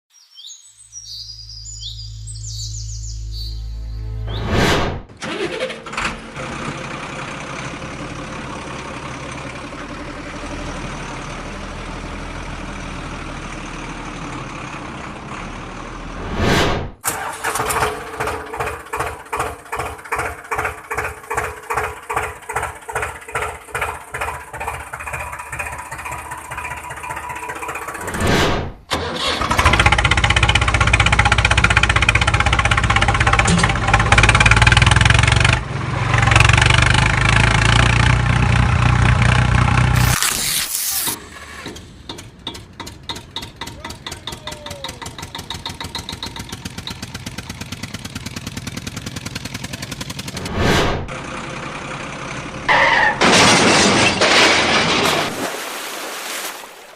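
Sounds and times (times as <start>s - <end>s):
vehicle engine running: 5.2s - 40.3s, 41.1s - 52.7s
regular engine chugging: 17.1s - 28.1s, 29.2s - 35.6s, 41.2s - 50.4s.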